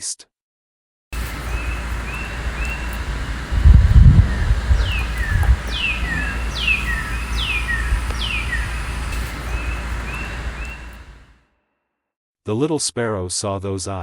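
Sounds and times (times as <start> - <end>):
faint bird chirps: 1.2 - 11.2
low ambient rumble: 1.2 - 11.3
bird whistle sweeping downward: 1.3 - 11.2.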